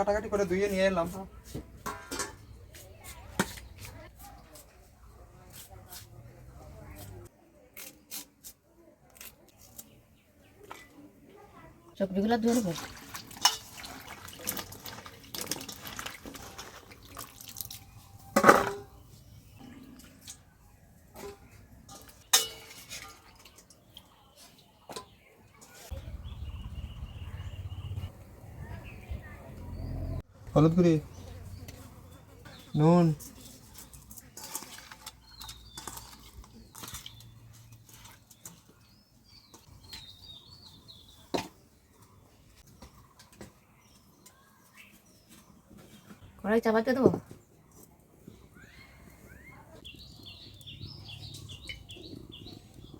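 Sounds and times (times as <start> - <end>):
pot clinking: 1.8 - 2.5, 12.8 - 17.2, 21.2 - 23.8
water splashing and dripping: 12.4 - 18.0
small birds chirping: 23.4 - 52.9.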